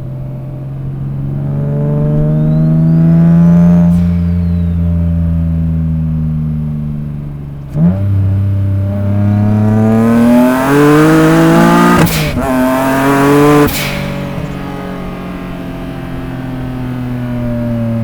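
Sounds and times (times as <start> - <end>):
car engine accelerating: 0.0 - 18.0
gear upshift noise burst: 13.3 - 14.6.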